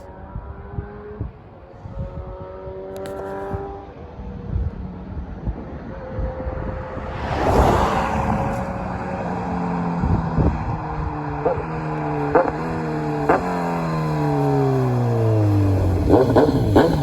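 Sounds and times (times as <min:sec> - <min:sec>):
motorcycle engine decelerating: 0:00.0 - 0:17.0.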